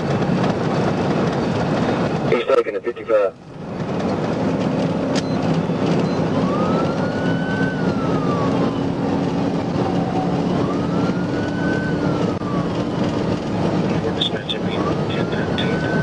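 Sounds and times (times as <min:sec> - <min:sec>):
car engine and road noise: 0:00.0 - 0:16.0
police siren wailing: 0:04.9 - 0:16.0.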